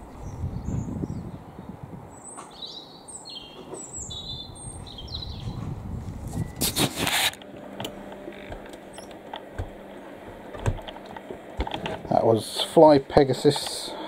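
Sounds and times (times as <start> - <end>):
small birds chirping: 0.0 - 5.6, 8.4 - 9.8.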